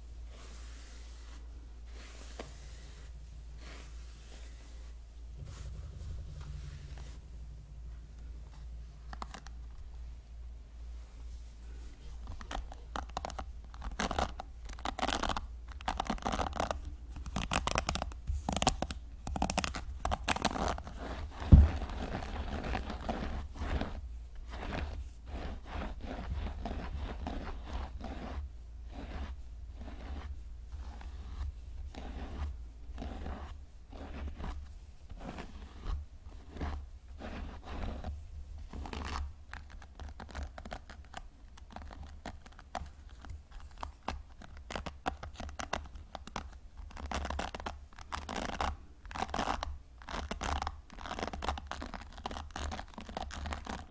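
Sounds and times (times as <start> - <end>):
hair brush bristles scraping: 0.3 - 10.0
sharp low thump: 5.3 - 9.2.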